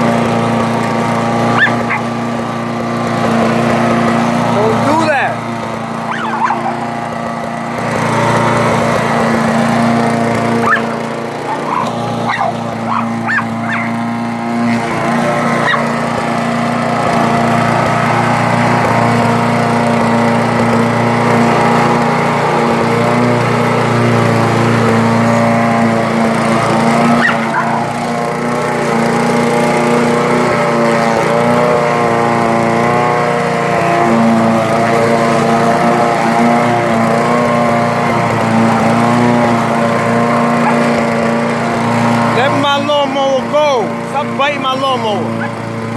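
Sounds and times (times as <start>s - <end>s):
lawn mower engine running: 0.0s - 45.9s
dog barking and yelping: 1.5s - 2.1s, 6.1s - 7.0s, 10.6s - 14.0s, 15.6s - 15.9s, 27.2s - 28.0s, 40.6s - 40.9s.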